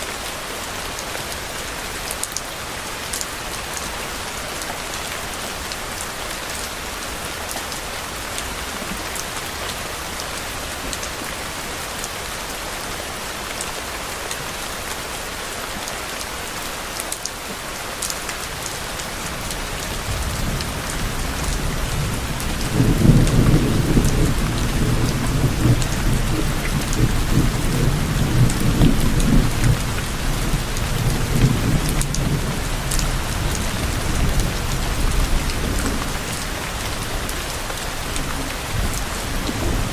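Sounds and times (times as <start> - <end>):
steady rain falling: 0.0 - 39.9
distant thunder rumbling: 19.4 - 37.1.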